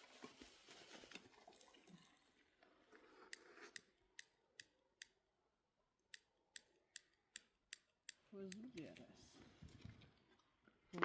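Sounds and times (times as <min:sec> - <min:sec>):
faint soft rustling: 0:00.0 - 0:02.2.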